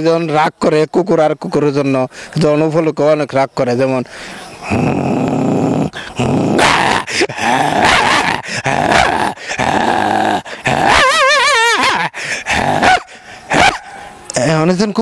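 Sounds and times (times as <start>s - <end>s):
man whining: 4.6s - 13.0s
man imitating dog growls and barks: 4.6s - 13.8s.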